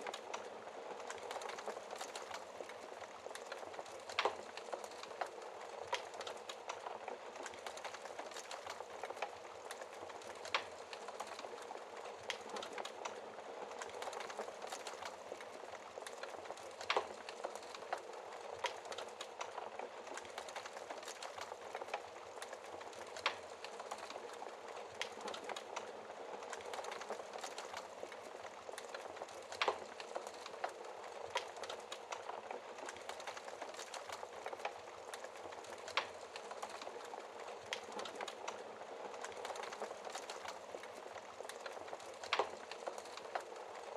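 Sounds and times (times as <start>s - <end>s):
wood fire crackling and popping: 0.0s - 43.9s.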